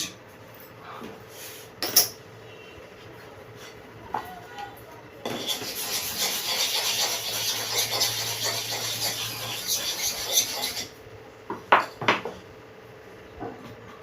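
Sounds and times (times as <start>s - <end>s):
blade scraping on sharpening stone: 5.2s - 11.0s.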